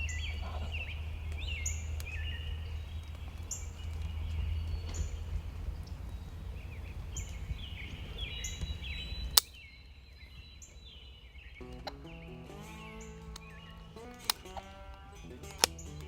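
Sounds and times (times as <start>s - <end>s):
low outdoor rumble: 0.0s - 9.5s, 11.6s - 16.0s
songbirds chirping: 0.0s - 16.0s
sharp click: 9.4s - 9.6s
music: 11.6s - 16.0s.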